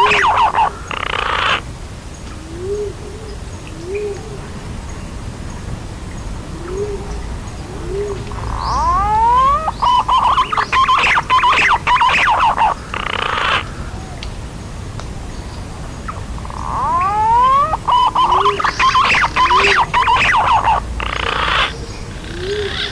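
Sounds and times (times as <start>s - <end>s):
whistled bird warbling: 0.0s - 1.6s, 7.9s - 14.2s, 16.1s - 22.9s
pigeon soft low coos: 6.5s - 10.4s, 19.4s - 22.9s.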